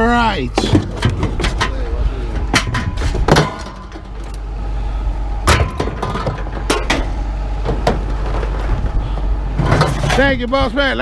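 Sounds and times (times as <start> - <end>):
steady low rumble: 0.0 - 11.0
scrap metal clanking: 0.6 - 4.4, 5.4 - 9.0, 9.6 - 10.4.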